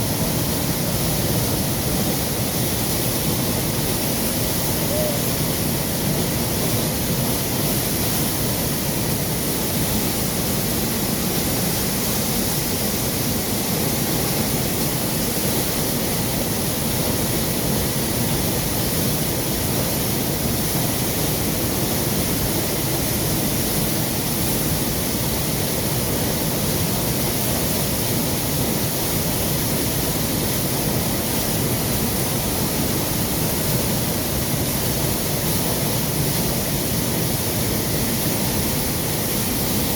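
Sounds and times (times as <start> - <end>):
water flowing: 0.0 - 28.0.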